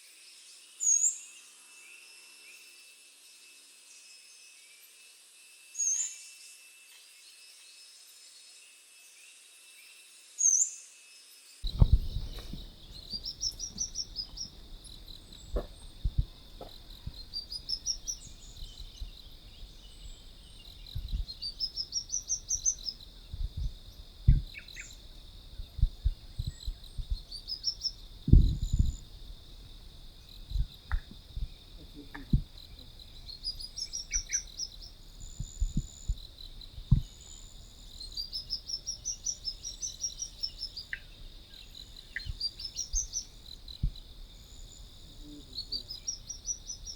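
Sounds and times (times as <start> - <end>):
high insect drone: 0.0 - 46.9
low thumps: 11.7 - 32.7, 35.3 - 37.2.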